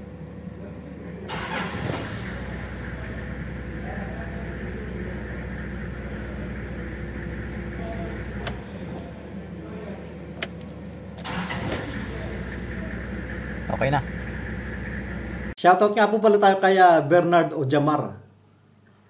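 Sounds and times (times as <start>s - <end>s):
car engine idling: 0.9s - 15.6s
engine cranking and catching: 1.3s - 3.2s, 10.3s - 15.5s.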